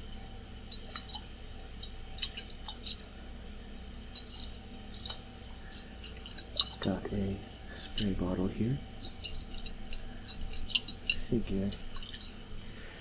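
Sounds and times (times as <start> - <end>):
air conditioner hum: 0.0 - 13.0
glass clinking: 8.9 - 12.4.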